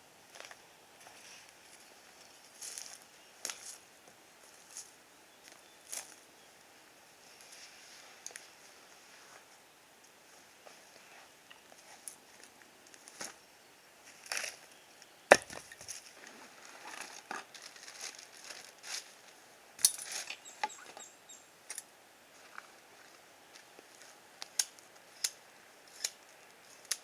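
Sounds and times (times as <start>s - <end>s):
wood knocking and snapping: 15.3s - 15.8s.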